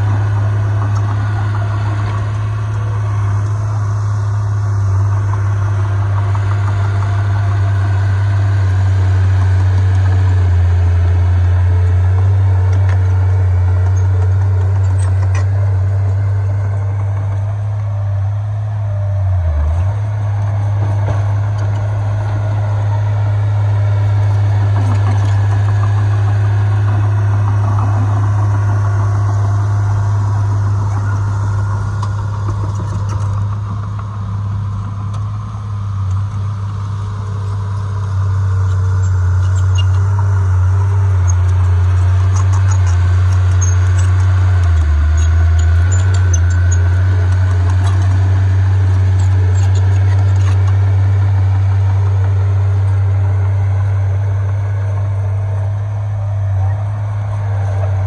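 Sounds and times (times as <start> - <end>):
heavy diesel engine droning: 0.0 - 58.0.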